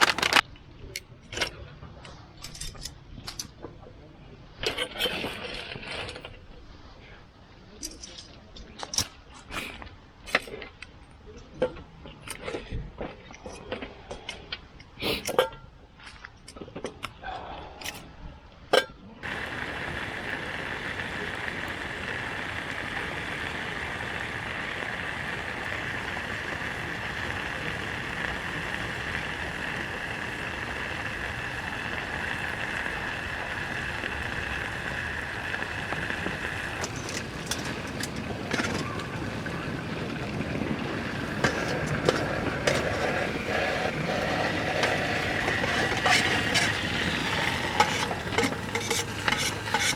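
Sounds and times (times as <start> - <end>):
meat sizzling in a pan: 19.2 - 49.9.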